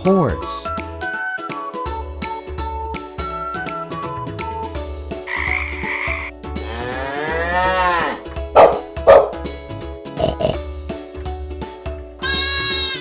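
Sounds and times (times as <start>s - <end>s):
children's background music: 0.0s - 13.0s
frog croaking: 5.3s - 6.4s
cow mooing: 5.3s - 8.3s
dog barking: 8.6s - 9.4s.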